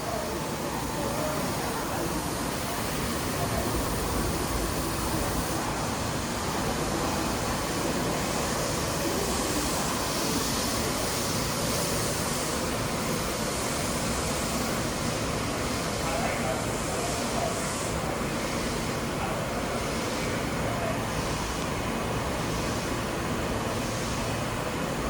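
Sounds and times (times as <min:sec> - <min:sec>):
train rushing noise: 0:00.0 - 0:12.0.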